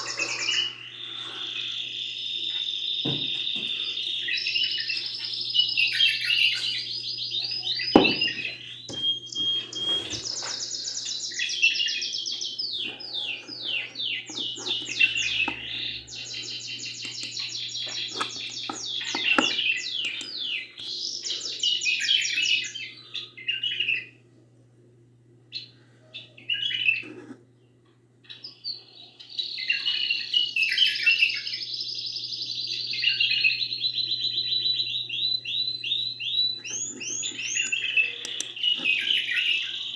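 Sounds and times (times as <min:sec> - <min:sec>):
songbird trilling: 0:00.0 - 0:02.1, 0:03.0 - 0:22.9, 0:32.6 - 0:39.9
low steady hum: 0:00.0 - 0:29.1.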